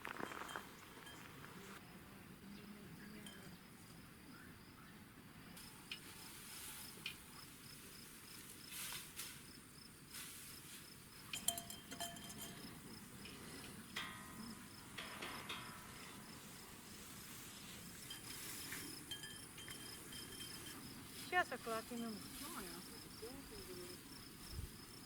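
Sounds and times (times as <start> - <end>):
cricket chirping: 0.1 - 25.0
clinks and knocks: 11.2 - 16.6, 17.9 - 21.0.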